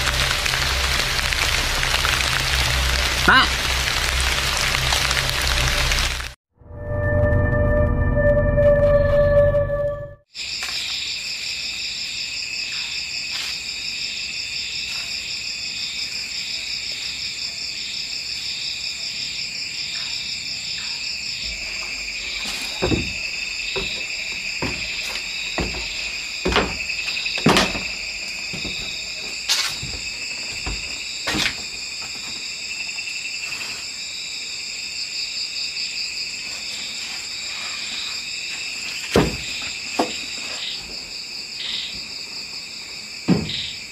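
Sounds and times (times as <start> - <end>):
crickets chirping: 10.4 - 43.9
scattered knocks and taps: 22.8 - 23.2, 25.6 - 26.8.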